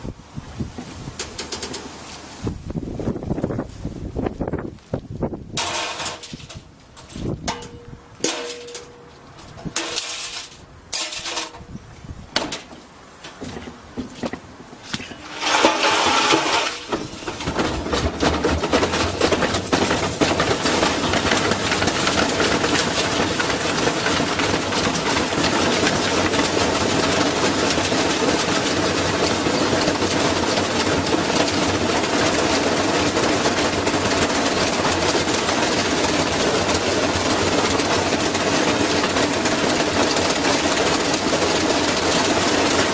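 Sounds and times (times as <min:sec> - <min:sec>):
brick rattling and banging in drum: 0:12.4 - 0:42.9
washing machine running: 0:15.2 - 0:42.9.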